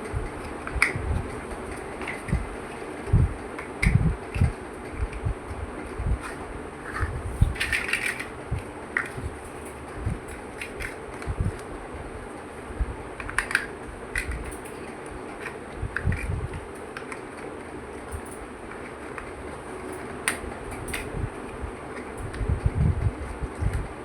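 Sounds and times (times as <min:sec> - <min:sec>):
steady low hum: 0:00.0 - 0:24.0
plastic bricks clicking: 0:06.2 - 0:08.4, 0:09.0 - 0:11.3, 0:13.2 - 0:14.8, 0:19.9 - 0:21.1.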